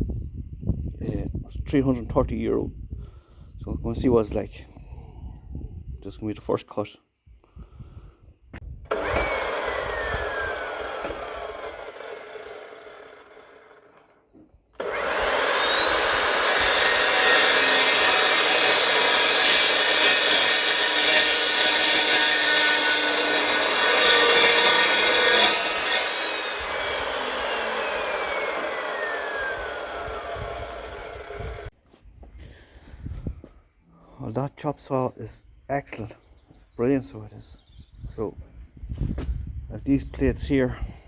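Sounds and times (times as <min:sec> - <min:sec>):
saw grinding through steel: 0:08.9 - 0:13.9, 0:14.8 - 0:31.7
chop saw whining: 0:08.9 - 0:14.2, 0:14.8 - 0:31.7.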